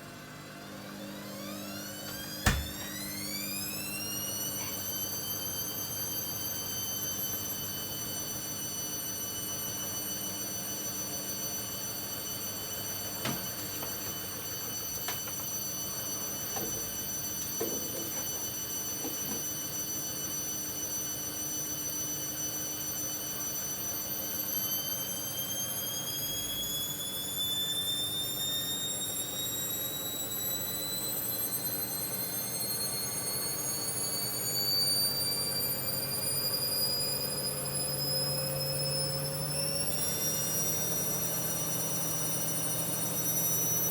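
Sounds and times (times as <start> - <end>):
washing machine motor whining: 0.0 - 43.9
washing machine drum clicks: 2.2 - 3.0.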